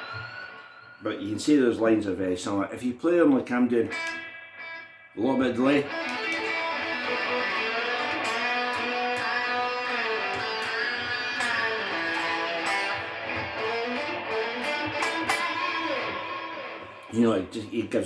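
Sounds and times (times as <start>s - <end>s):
electric guitar lead lick: 3.8s - 17.8s.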